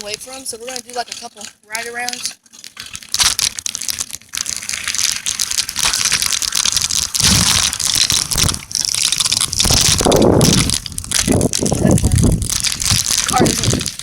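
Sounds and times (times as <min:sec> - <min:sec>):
wind crackling on camera microphone: 0:00.0 - 0:14.0
deep rumble: 0:04.4 - 0:14.0.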